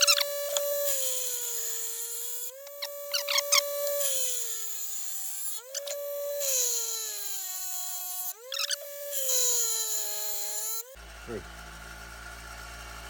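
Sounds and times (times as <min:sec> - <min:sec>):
power grinder sharpening blade: 0:00.0 - 0:13.0.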